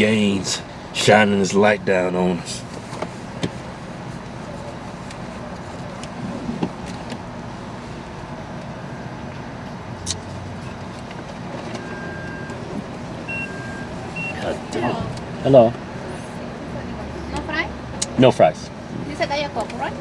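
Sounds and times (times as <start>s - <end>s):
car engine idling: 0.0s - 20.0s
short high beep: 11.8s - 12.6s, 13.3s - 14.6s.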